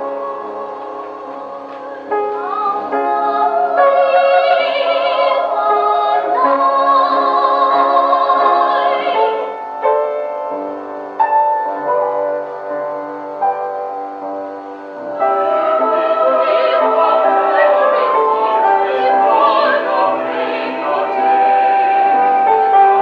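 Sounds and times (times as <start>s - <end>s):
operatic singing: 0.0s - 9.6s, 15.1s - 23.0s
piano chords: 0.0s - 23.0s.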